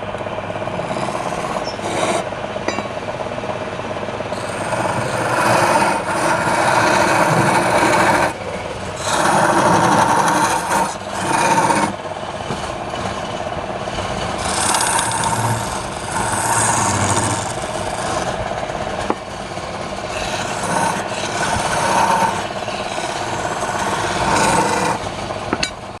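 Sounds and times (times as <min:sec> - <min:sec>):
wood scraping on a lathe: 0:00.0 - 0:02.7, 0:04.3 - 0:26.0.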